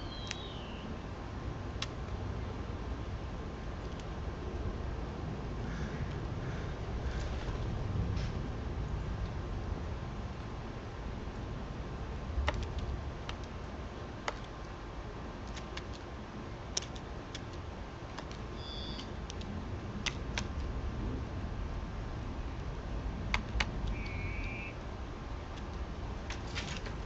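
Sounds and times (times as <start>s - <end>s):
birds and squirrels tapping: 0.0s - 0.7s, 16.8s - 20.7s, 23.3s - 24.8s
low steady rumble: 0.0s - 27.0s
high two-note bird chirp: 24.0s - 24.8s.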